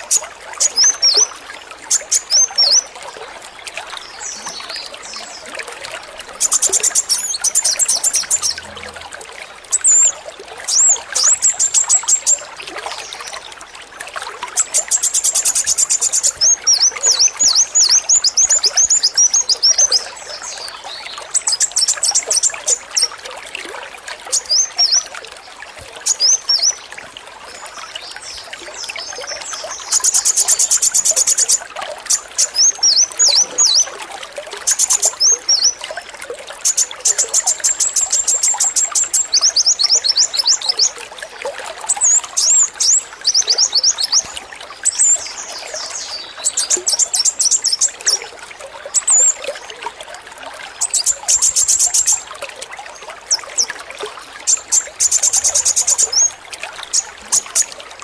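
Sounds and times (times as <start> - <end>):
trickle of running water: 0.0 - 58.0
sunbird rattling trills: 6.4 - 8.8, 54.5 - 57.7.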